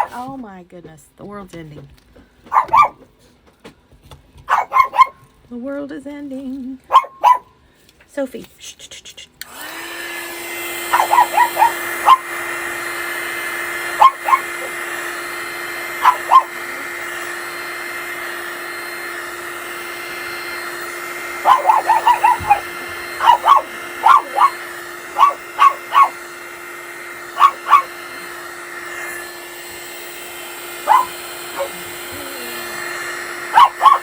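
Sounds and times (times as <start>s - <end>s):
dog barking: 0.0s - 0.2s, 2.5s - 3.1s, 4.5s - 5.2s, 6.9s - 7.6s, 10.9s - 12.4s, 13.9s - 15.0s, 15.8s - 17.3s, 21.3s - 26.3s, 27.2s - 28.0s, 30.8s - 32.0s, 33.4s - 34.0s
appliance whirring hum: 9.4s - 34.0s.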